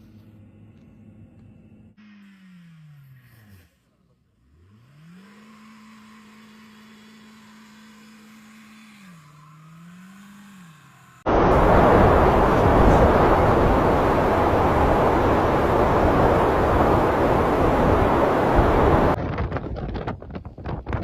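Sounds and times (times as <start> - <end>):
car revving with tyres spinning: 4.3 - 19.2
loud rushing noise: 11.3 - 19.2.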